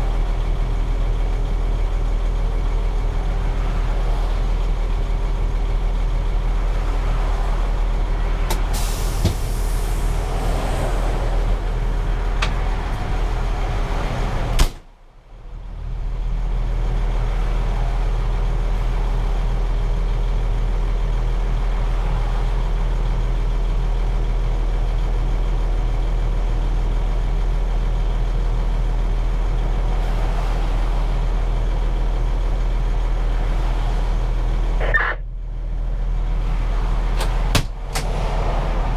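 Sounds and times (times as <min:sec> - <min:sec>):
diesel engine idling: 0:00.0 - 0:38.9
air brake hiss: 0:08.7 - 0:10.0.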